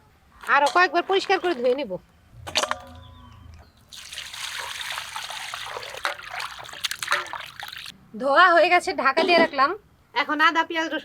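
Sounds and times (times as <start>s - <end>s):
water trickling and splashing: 1.1s - 1.8s, 3.8s - 7.9s.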